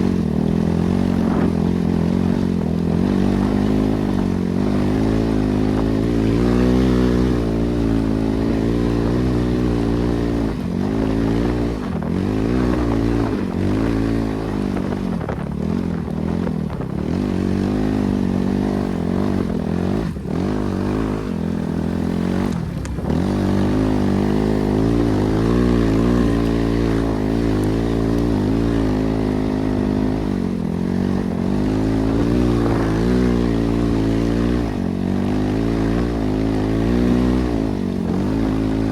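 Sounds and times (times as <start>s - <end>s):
single-cylinder engine revving: 0.0s - 38.9s.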